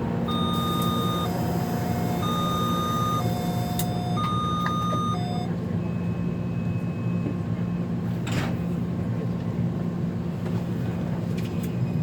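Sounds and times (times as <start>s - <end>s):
train hum: 0.0s - 12.0s
two-tone warning chime: 0.3s - 5.5s.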